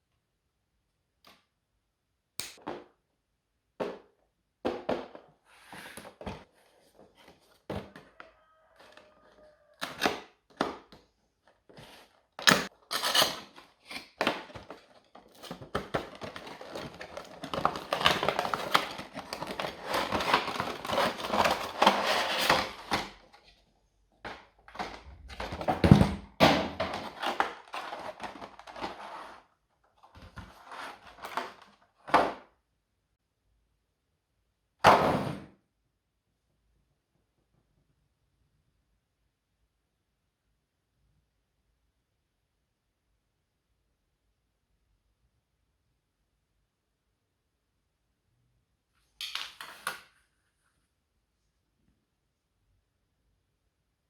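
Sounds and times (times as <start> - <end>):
packaging crackling rustle: 12.7 - 23.2.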